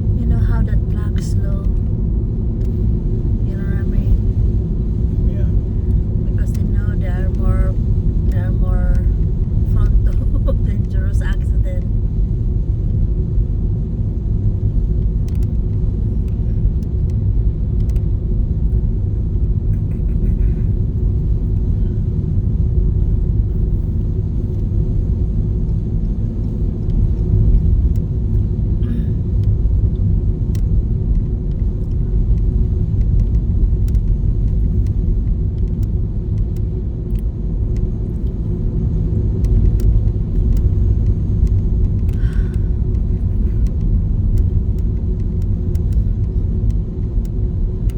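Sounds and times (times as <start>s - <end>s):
car interior road noise: 0.0s - 47.9s
faint clicks: 15.0s - 17.2s, 17.8s - 18.1s, 29.4s - 38.4s, 39.4s - 47.9s.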